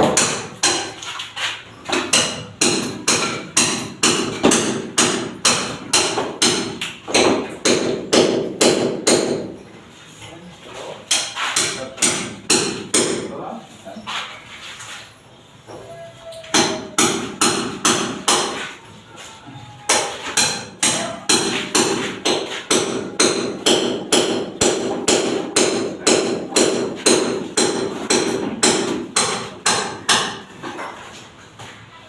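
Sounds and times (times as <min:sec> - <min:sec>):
hammer striking: 0:00.0 - 0:00.9, 0:02.0 - 0:09.5, 0:11.1 - 0:13.3, 0:16.5 - 0:18.6, 0:19.9 - 0:30.5.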